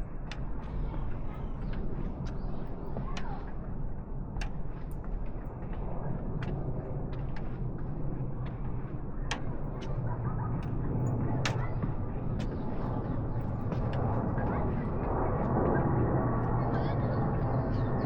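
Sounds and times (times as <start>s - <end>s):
faint distant voices: 8.3s - 18.0s.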